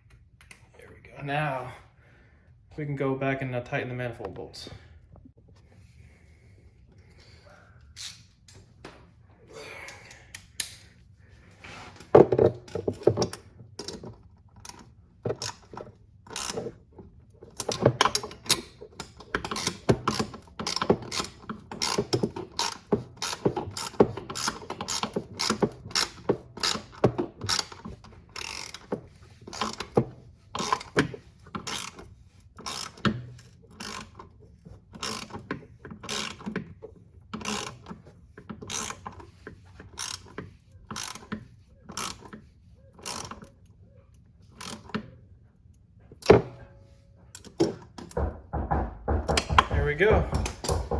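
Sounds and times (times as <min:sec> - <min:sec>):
ratchet wrench clicking: 0:15.4 - 0:16.7, 0:17.6 - 0:28.9, 0:30.6 - 0:34.2, 0:35.0 - 0:36.5, 0:37.4 - 0:38.0, 0:38.7 - 0:39.3, 0:39.9 - 0:42.4, 0:43.0 - 0:43.5.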